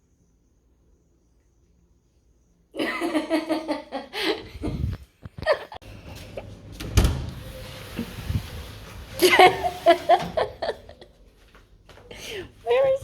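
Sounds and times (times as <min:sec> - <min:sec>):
person laughing: 0:02.8 - 0:05.8, 0:09.2 - 0:11.1.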